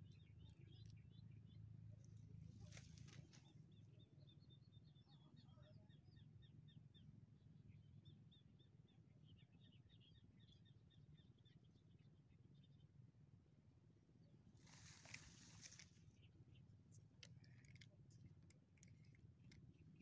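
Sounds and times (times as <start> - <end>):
small birds chirping: 0.0 - 13.2, 14.1 - 20.0
rustle: 2.5 - 3.5, 14.6 - 16.1.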